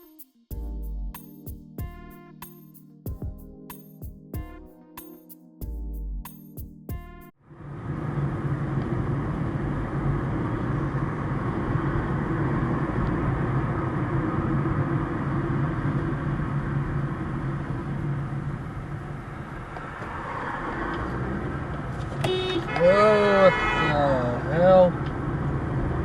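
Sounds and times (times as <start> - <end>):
car engine and road noise: 7.3 - 26.0.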